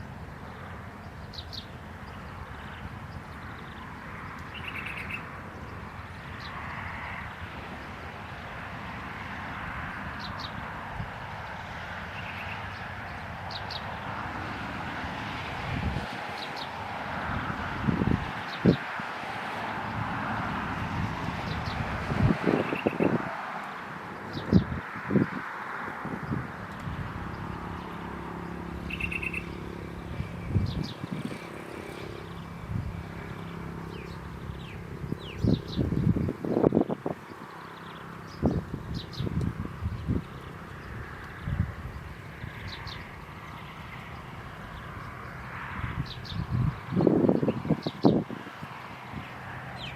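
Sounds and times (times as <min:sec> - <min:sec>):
small bird chirping: 0:01.0 - 0:06.6, 0:12.1 - 0:12.9, 0:22.6 - 0:23.2, 0:27.7 - 0:32.6
bird double chirps: 0:28.9 - 0:29.6.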